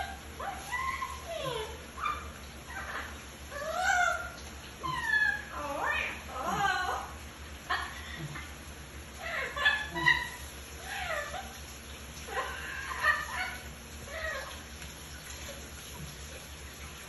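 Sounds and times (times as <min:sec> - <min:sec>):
parrot squawking: 0:00.0 - 0:07.2, 0:09.2 - 0:11.6, 0:12.3 - 0:14.6.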